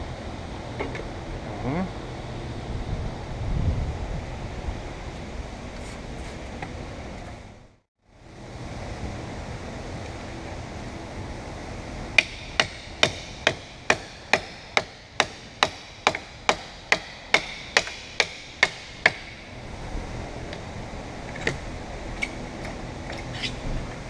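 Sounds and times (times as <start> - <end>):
hammer blows ringing: 12.2 - 19.5.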